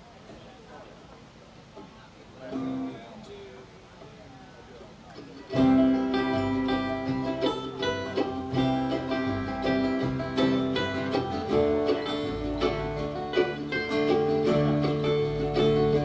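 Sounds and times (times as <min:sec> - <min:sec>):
banjo picking: 0:02.4 - 0:03.1, 0:05.1 - 0:16.0
bluegrass band playing: 0:02.4 - 0:03.1, 0:05.1 - 0:16.0
bass line: 0:05.6 - 0:16.0.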